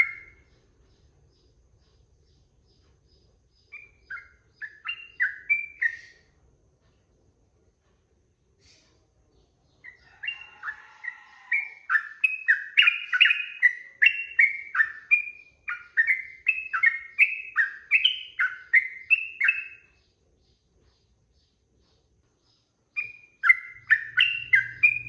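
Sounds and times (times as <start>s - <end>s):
bird singing whistled notes: 0.0s - 0.6s, 2.3s - 6.3s, 9.8s - 20.6s, 22.9s - 25.0s.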